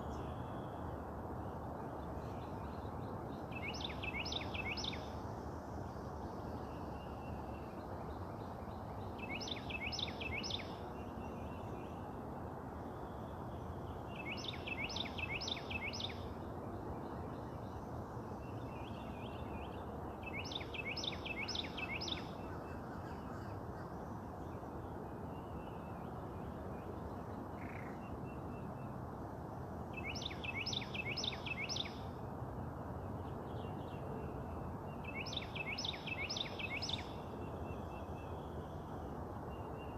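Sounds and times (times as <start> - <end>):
low outdoor background hum: 0.0 - 39.9
songbird singing: 0.0 - 39.9.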